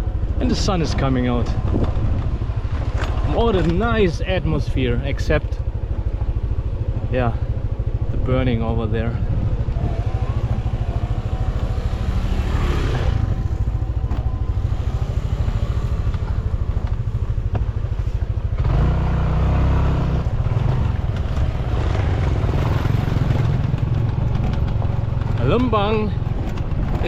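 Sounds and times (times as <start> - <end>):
wind buffeting microphone: 0.0 - 4.9, 5.9 - 18.8
motorcycle engine running: 0.0 - 27.0.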